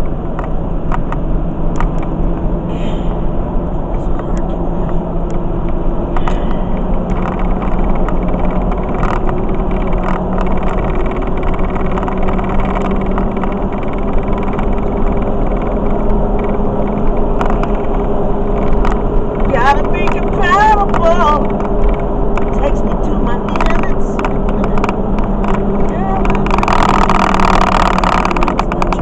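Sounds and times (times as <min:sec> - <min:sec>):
car engine hum: 0:00.0 - 0:29.0
road noise: 0:00.0 - 0:29.0.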